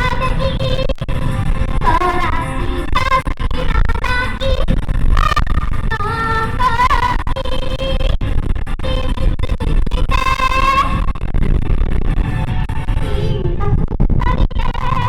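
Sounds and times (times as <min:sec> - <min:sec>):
woman singing live: 0:00.0 - 0:01.0, 0:01.8 - 0:04.6, 0:13.0 - 0:15.0
wind buffeting microphone: 0:00.0 - 0:15.0.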